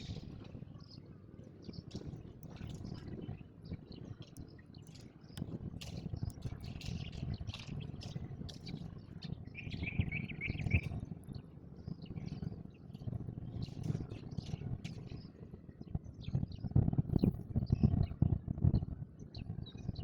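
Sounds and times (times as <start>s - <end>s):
low rumbling background noise: 0.0s - 20.0s
sparrows chirping: 9.5s - 10.9s.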